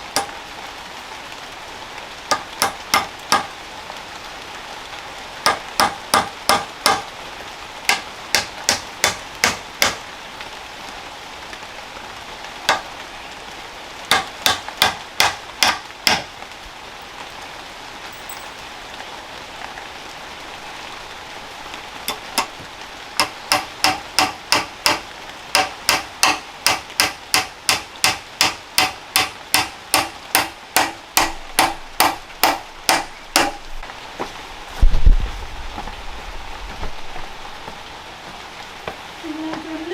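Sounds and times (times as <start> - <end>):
tool striking wood: 2.3 - 3.5, 5.4 - 7.1, 7.9 - 10.0, 14.1 - 16.3, 23.2 - 33.6.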